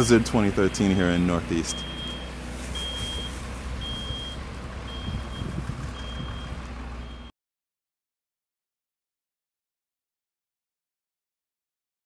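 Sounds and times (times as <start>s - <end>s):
low steady rumble: 0.0s - 7.3s
truck reversing alarm beeping: 0.0s - 7.3s.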